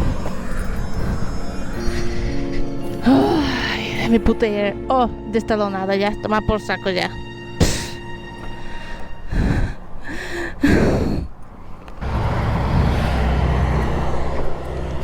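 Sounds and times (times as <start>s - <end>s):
steady engine hum: 8.5s - 15.0s
heavy breathy sighs and gasps: 8.6s - 11.4s.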